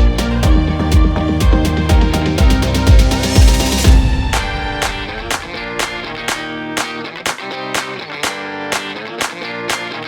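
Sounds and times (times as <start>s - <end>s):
upbeat electronic music: 0.0s - 7.0s.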